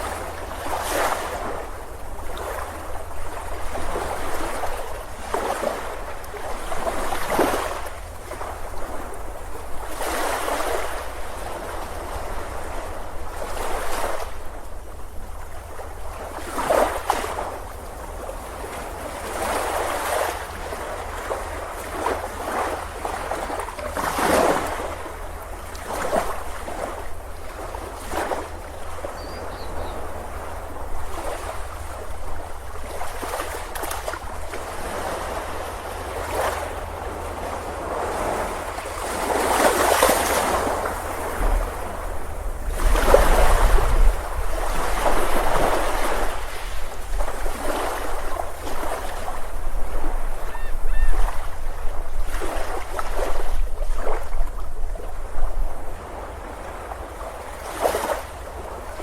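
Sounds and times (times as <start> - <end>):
ocean waves breaking on beach: 0.0 - 59.0.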